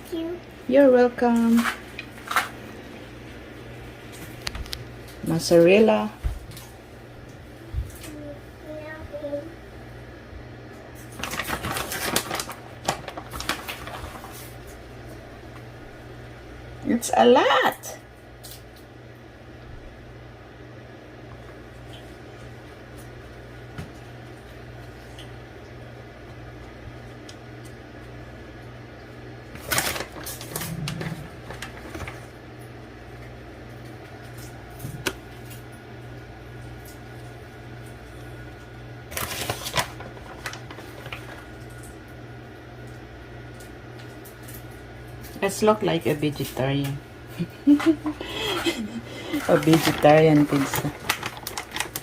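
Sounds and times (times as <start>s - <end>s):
shredded cheese rustling: 48.5s - 52.0s.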